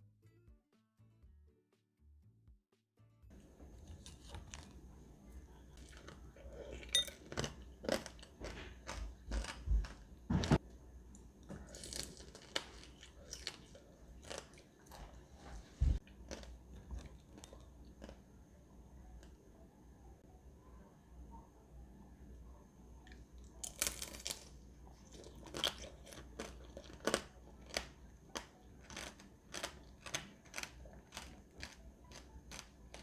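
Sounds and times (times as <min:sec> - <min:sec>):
candy shell crunching when bitten: 0:23.5 - 0:33.0.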